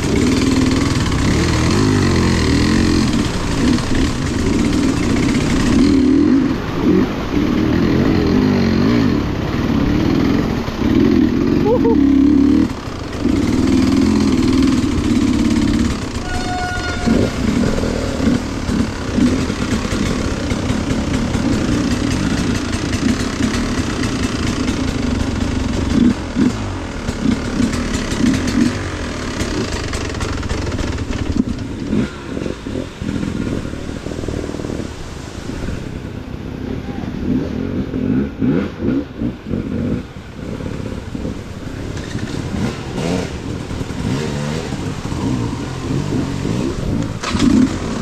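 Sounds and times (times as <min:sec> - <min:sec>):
off-road vehicle engine revving: 0:00.0 - 0:48.0
clatter: 0:12.6 - 0:33.5, 0:41.8 - 0:48.0.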